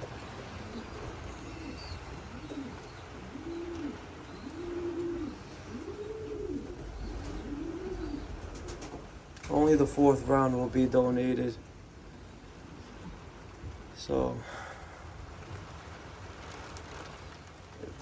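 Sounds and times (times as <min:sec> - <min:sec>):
pigeon cooing: 0:00.0 - 0:09.2.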